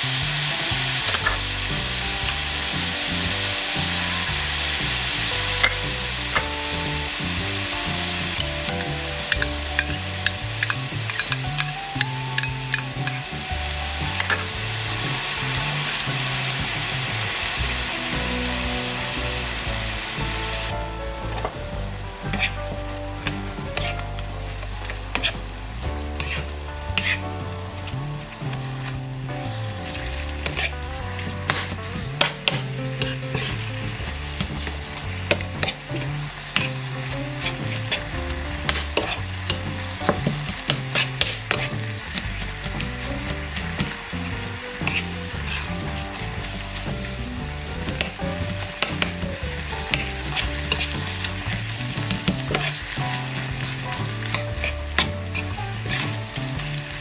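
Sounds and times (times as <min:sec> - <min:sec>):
meat sizzling in a pan: 0:00.0 - 0:57.0
spatula scraping a pan: 0:34.4 - 0:56.9.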